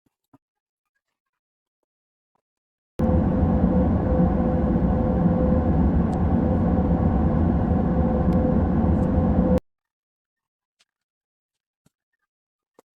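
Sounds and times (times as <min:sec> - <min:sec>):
tank engine rumble: 0:03.0 - 0:09.6.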